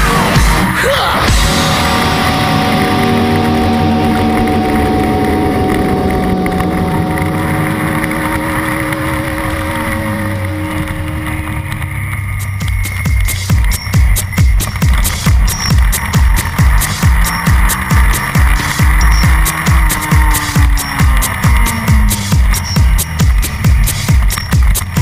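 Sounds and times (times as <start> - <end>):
motorcycle engine at speed: 0.0 - 25.0.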